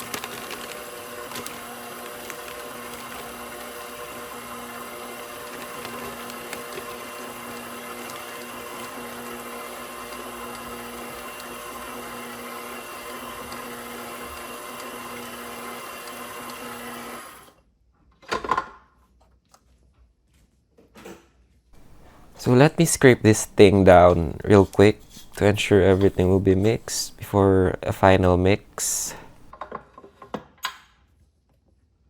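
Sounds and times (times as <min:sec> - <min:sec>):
stand mixer running: 0:00.0 - 0:17.5, 0:21.8 - 0:29.5.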